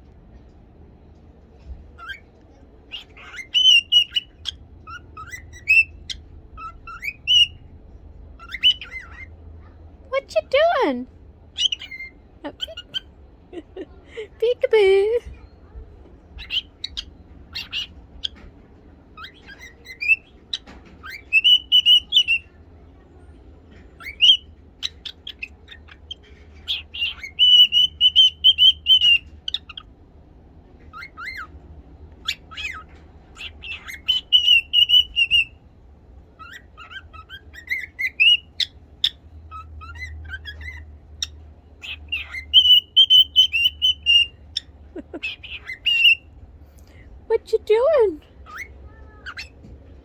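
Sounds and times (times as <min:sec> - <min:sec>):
cockatiel chirps: 0:02.0 - 0:02.3, 0:02.9 - 0:07.6, 0:08.4 - 0:09.4, 0:11.6 - 0:13.1, 0:16.4 - 0:18.5, 0:19.2 - 0:22.6, 0:24.0 - 0:29.9, 0:30.9 - 0:31.5, 0:32.2 - 0:35.6, 0:36.4 - 0:46.4, 0:48.4 - 0:49.7
cockatiel whistling: 0:02.9 - 0:07.6, 0:19.2 - 0:22.5, 0:26.7 - 0:29.8, 0:33.4 - 0:35.6, 0:36.4 - 0:46.3.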